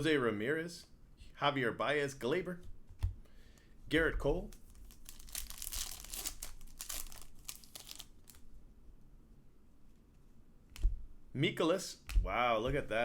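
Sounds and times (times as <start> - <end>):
foil wrapper crinkling: 4.4 - 8.4.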